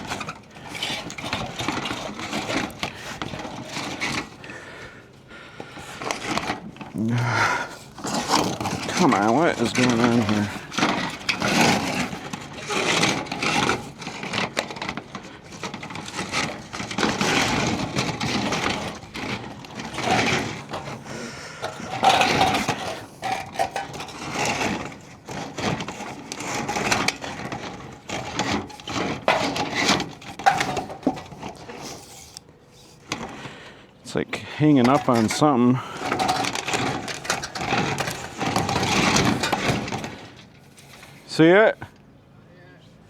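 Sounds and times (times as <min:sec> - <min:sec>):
line scraping through wall opening: 0:00.0 - 0:41.8.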